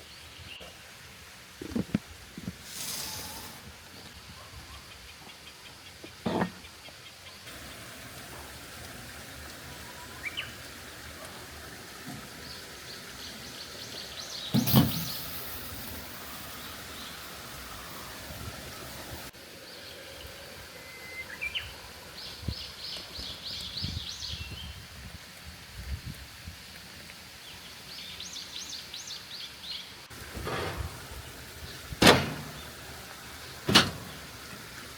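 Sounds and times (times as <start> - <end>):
steady background hiss: 5.1 - 34.9
small birds chirping: 9.4 - 11.4, 12.4 - 15.5, 19.7 - 24.8.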